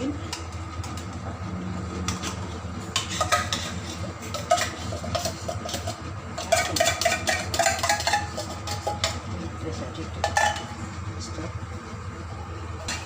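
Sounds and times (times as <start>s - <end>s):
low steady hum: 0.0s - 13.0s
metal spoon scraping a pot: 3.0s - 9.2s.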